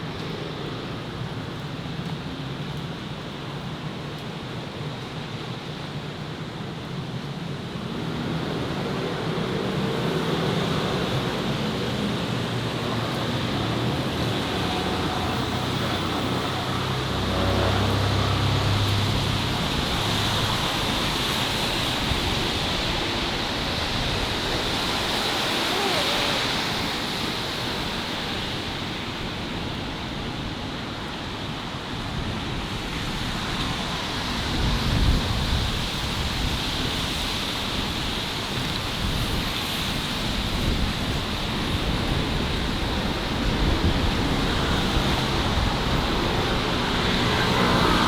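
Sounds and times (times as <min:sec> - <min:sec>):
city traffic rushing: 0:07.5 - 0:48.0
vehicle engine humming low: 0:11.6 - 0:21.5.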